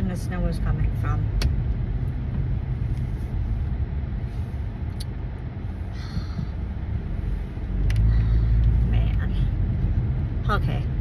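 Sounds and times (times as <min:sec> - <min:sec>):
car driving rumble from inside: 0:00.0 - 0:11.0.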